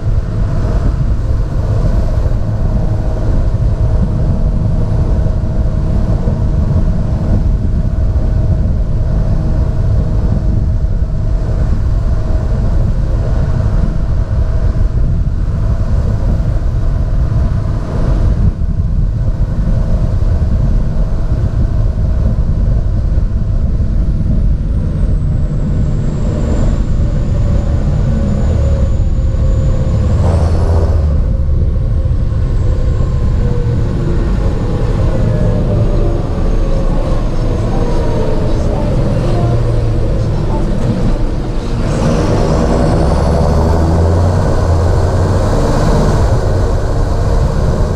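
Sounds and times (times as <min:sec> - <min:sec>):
tractor diesel engine running: 0:00.0 - 0:47.9
faint high whine: 0:23.7 - 0:47.9.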